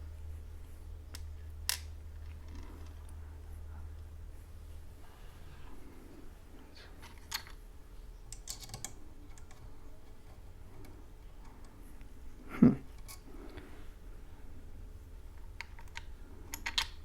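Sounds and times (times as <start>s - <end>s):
metal screws clicking: 15.7s - 17.0s.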